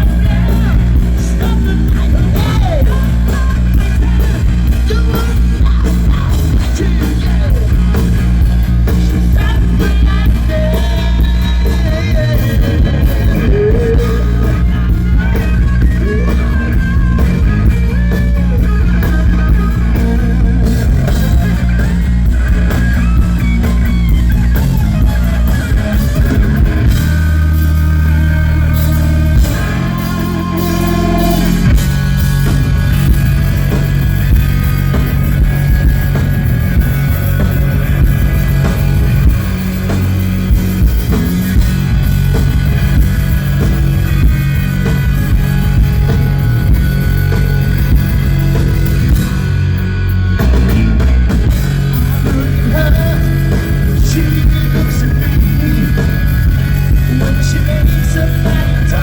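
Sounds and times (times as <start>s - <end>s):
hard rock band playing: 0.0s - 59.0s.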